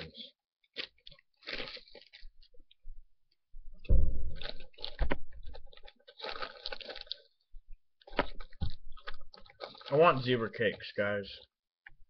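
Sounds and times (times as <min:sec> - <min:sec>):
person crunching candy: 0:00.6 - 0:02.7, 0:04.3 - 0:10.9.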